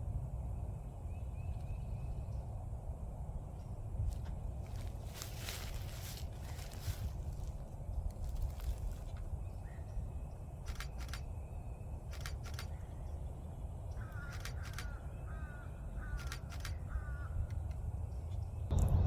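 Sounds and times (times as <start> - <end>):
camera shutter clicks: 10.7 - 11.3, 12.1 - 12.8, 14.2 - 15.0, 16.2 - 16.8.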